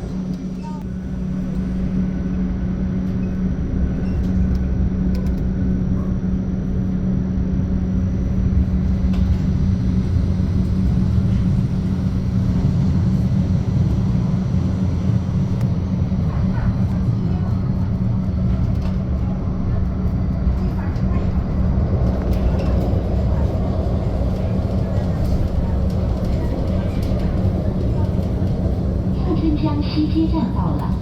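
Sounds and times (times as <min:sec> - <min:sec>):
tram wheels rumbling: 0:07.7 - 0:31.0.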